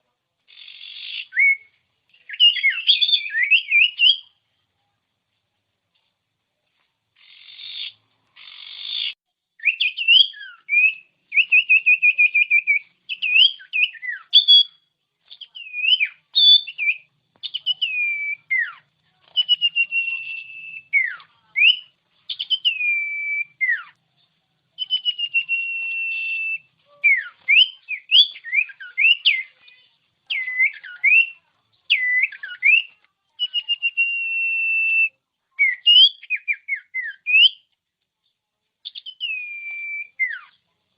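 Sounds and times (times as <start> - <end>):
bird singing whistles: 0.6 - 4.3, 7.3 - 24.0, 24.8 - 29.6, 30.3 - 37.7, 38.8 - 40.6.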